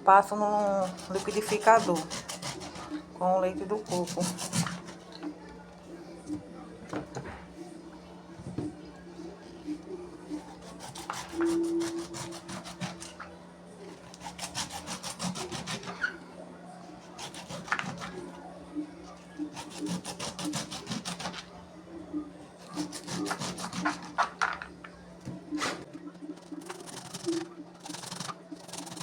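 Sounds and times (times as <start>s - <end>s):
knife scraping corn cob: 0.6s - 3.1s, 3.7s - 5.2s, 10.3s - 13.3s, 13.9s - 16.2s, 17.0s - 18.4s, 19.2s - 21.6s, 22.6s - 24.7s, 25.6s - 29.0s.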